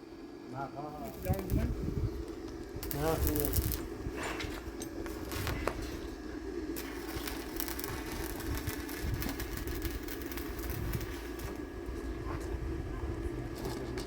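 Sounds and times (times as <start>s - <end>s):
machine hum: 0.0s - 14.0s
clicks and crackles: 1.1s - 5.9s, 6.8s - 11.6s.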